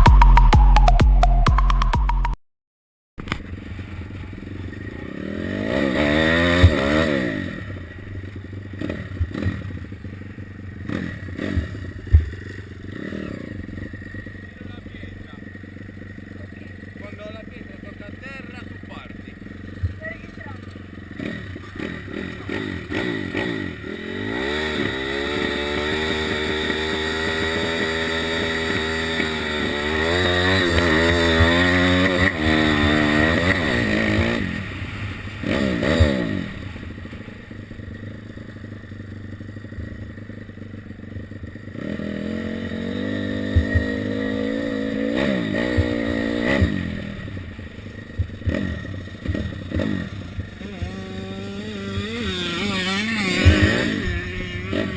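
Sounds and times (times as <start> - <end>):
motorbike engine accelerating: 3.2 - 54.9.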